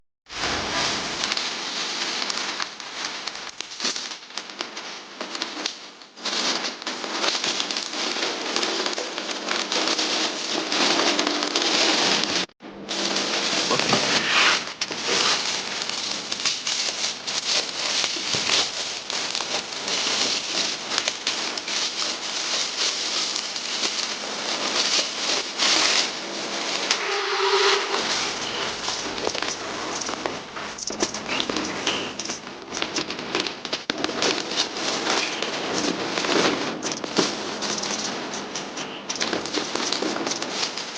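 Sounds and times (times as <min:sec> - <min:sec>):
packaging crinkling and rustling: 0:00.4 - 0:40.9.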